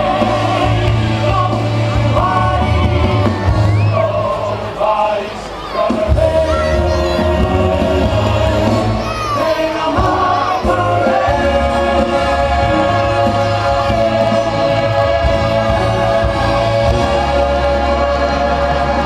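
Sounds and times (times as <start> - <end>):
choir singing: 0.0 - 19.0
low bass: 10.0 - 19.0.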